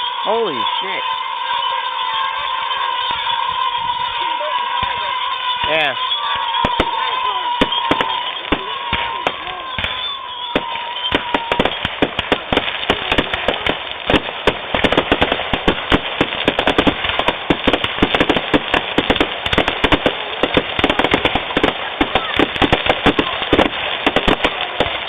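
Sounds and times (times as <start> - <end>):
fireworks cracks and bangs: 0.0 - 25.0
whistling firework: 0.0 - 25.0.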